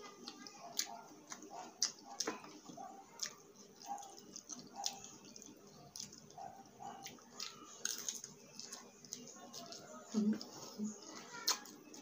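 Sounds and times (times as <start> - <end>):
wet chewing and mouth smacks: 0.2 - 9.8.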